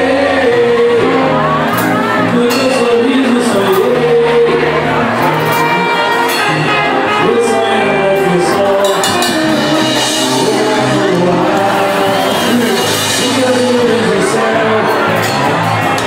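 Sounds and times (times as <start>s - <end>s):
person singing: 0.0s - 16.0s
samba band playing: 5.1s - 16.0s.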